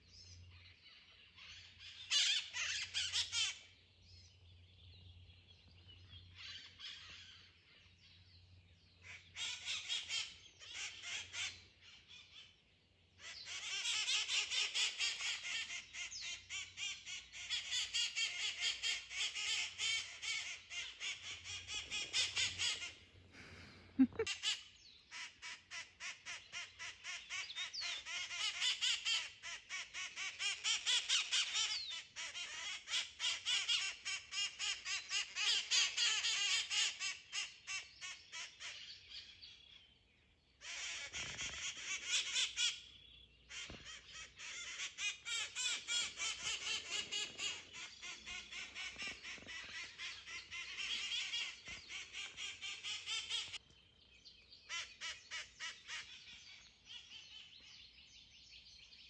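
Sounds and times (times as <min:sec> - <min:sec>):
parrots squawking: 0:13.2 - 0:27.3, 0:43.5 - 0:53.6.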